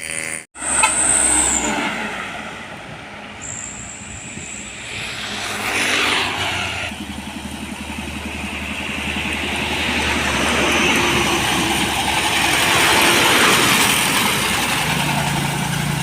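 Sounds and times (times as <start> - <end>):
heavy truck engine: 0.0 - 16.0
vehicle passing by: 4.3 - 16.0.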